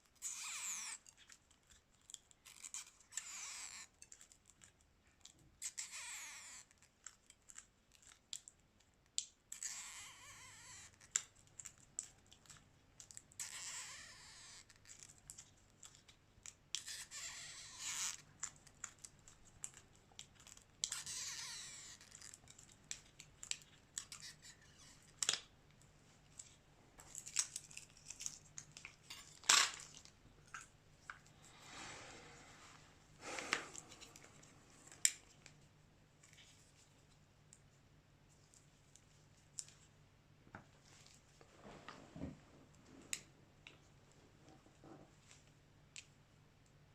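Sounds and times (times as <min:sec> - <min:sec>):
scraping strokes: 0:31.4 - 0:34.4.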